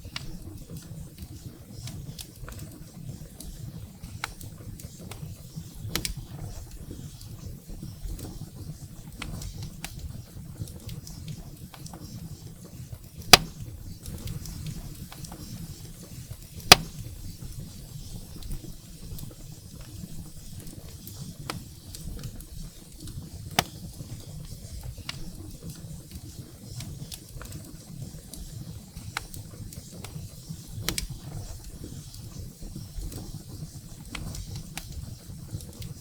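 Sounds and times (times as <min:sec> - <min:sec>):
wood fire crackling: 0:00.0 - 0:36.0
firewood popping loudly: 0:13.2 - 0:17.4.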